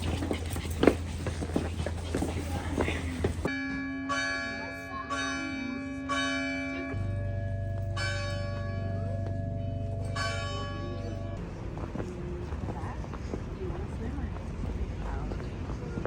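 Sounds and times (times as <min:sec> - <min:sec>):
church bell ringing: 0:03.5 - 0:11.4.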